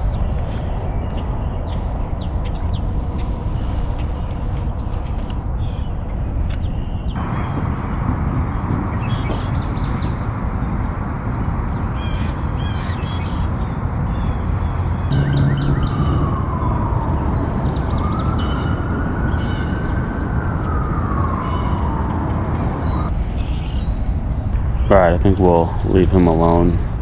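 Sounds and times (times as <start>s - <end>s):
small birds chirping: 0.0s - 23.9s
steady rushing background: 7.1s - 25.1s
siren wailing: 13.8s - 23.1s.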